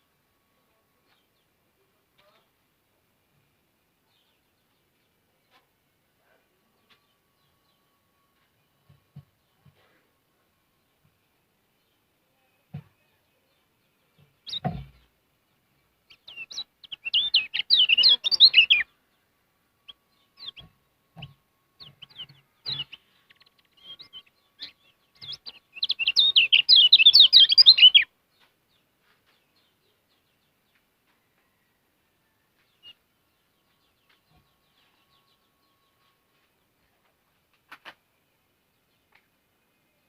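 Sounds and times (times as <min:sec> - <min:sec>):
bird twittering chirps: 0:14.4 - 0:14.8, 0:16.1 - 0:18.9, 0:19.8 - 0:20.7, 0:21.8 - 0:28.5
low thump: 0:14.5 - 0:15.0.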